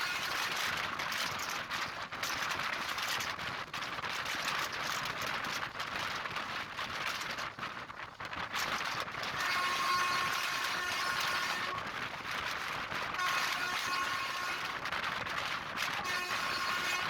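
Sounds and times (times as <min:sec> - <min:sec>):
passenger train running: 0:09.4 - 0:11.8, 0:13.2 - 0:14.8, 0:16.0 - 0:17.0.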